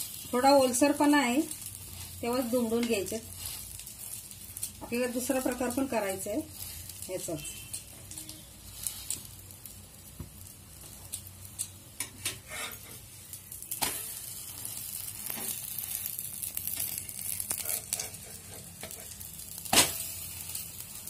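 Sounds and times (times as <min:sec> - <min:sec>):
bread sizzling in oil: 0:00.0 - 0:21.0
metal spatula scraping pan: 0:12.0 - 0:13.1, 0:17.5 - 0:19.2.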